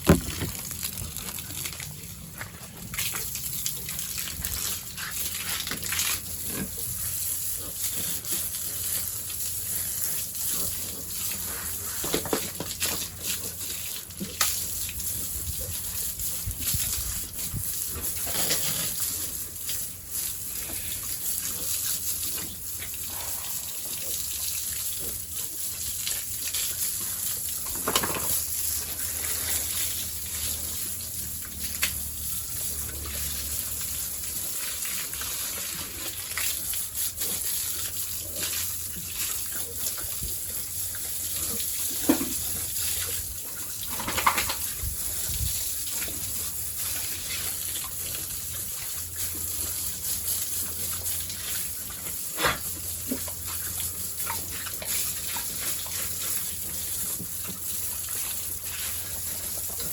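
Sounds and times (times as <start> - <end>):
knocks and splashes: 0.0 - 1.3
water rushing from a hose: 0.0 - 59.9.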